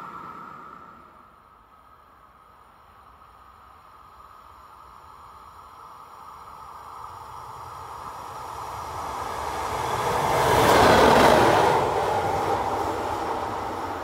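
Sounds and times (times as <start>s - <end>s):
electric train passing at speed: 0.0s - 14.0s.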